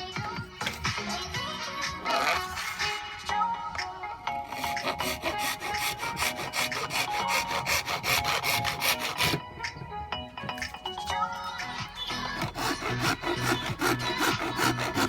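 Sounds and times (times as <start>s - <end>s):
background music: 0.0s - 15.0s
hacksaw cutting plastic pipe: 2.0s - 3.0s, 4.4s - 9.4s, 12.1s - 15.0s.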